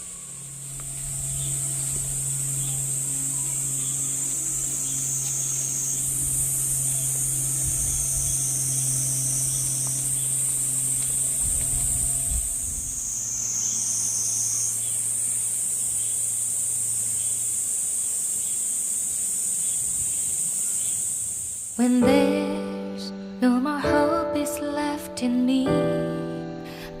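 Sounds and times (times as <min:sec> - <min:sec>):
low rumble: 0:00.0 - 0:13.6
insects shrilling: 0:00.0 - 0:23.3
low steady hum: 0:00.0 - 0:27.0.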